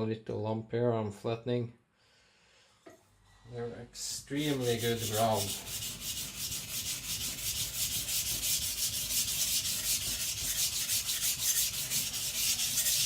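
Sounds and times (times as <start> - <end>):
knife blade scraping on whetstone: 4.4 - 13.0.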